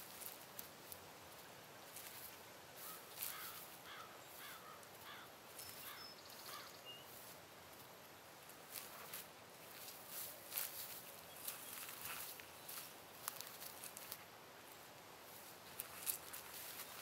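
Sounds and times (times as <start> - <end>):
soft rustles in dry grass: 0.0 - 17.0
bird calling short repeated calls: 2.8 - 7.1.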